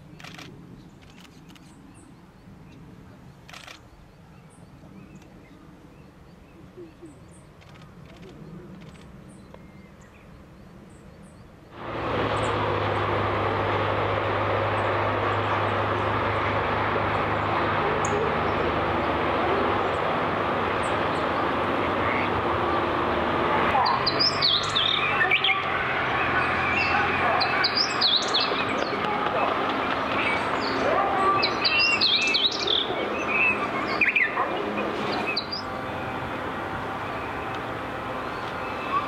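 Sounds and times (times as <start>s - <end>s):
loud background noise with low hum: 11.8s - 39.0s
songbird twittering: 23.8s - 25.8s, 26.4s - 29.1s, 30.1s - 34.4s, 35.0s - 36.0s.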